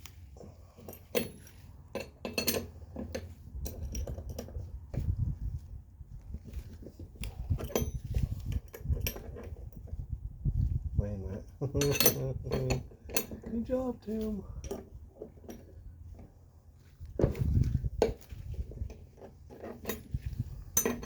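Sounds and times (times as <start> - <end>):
wrenches clinking on metal: 0.4 - 4.7, 7.5 - 9.8, 11.6 - 15.8, 18.0 - 21.0.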